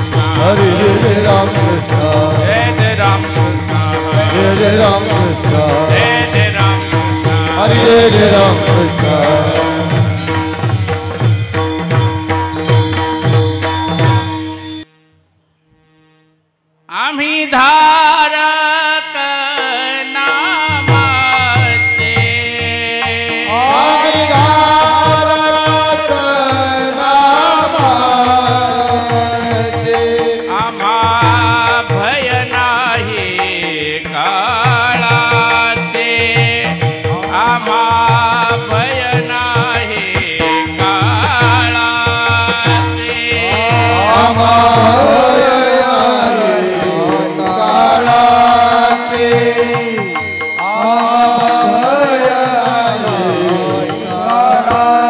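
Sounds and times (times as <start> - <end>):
person singing devotional song: 0.0 - 14.2, 16.9 - 55.0
sustained accompaniment: 0.0 - 16.3, 19.6 - 55.0
harmonium drone: 0.0 - 55.0.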